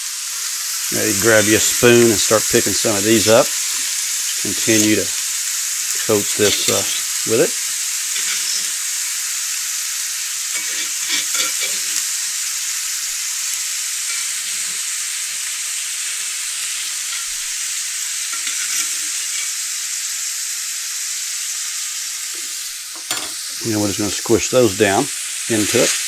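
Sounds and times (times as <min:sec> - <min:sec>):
meat and onions sizzling in pan: 0:00.0 - 0:26.0
utensil scraping a pan: 0:06.0 - 0:07.4, 0:08.1 - 0:08.8, 0:10.5 - 0:12.0, 0:18.3 - 0:19.6.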